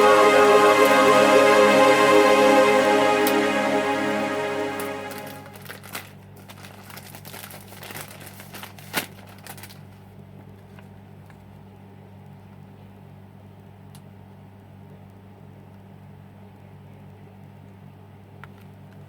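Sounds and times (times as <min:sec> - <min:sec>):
crinkling handling noises: 0:05.6 - 0:10.0.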